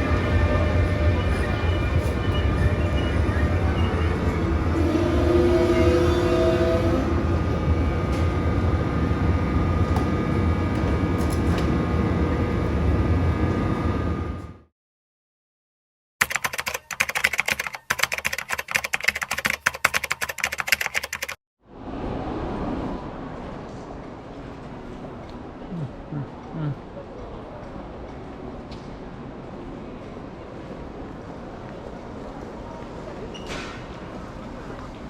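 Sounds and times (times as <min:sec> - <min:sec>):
moving train rumble: 0:00.0 - 0:14.6
rapid clicking: 0:16.2 - 0:21.4.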